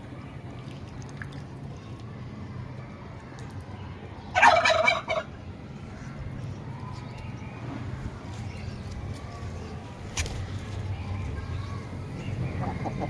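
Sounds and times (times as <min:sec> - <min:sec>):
turkey gobbling: 0:04.4 - 0:05.3.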